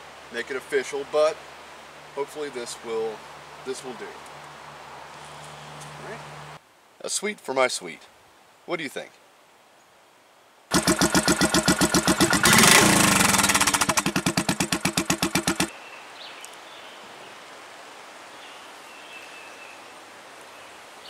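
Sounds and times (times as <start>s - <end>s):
motorcycle engine idling: 10.7s - 15.7s.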